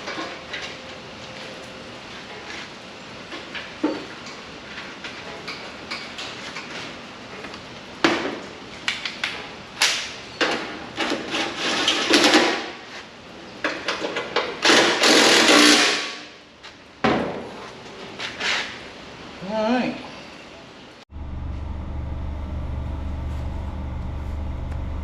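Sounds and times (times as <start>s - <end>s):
knocks and clanks of metal parts: 9.2s - 12.8s, 13.6s - 16.4s
scraping and sliding: 18.1s - 18.9s.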